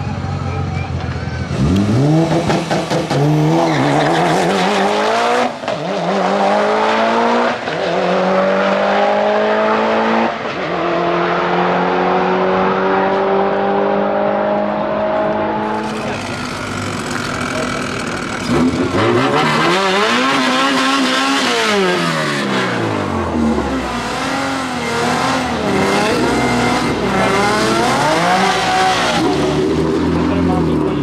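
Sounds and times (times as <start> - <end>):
drag car engine accelerating: 0.0 - 31.0.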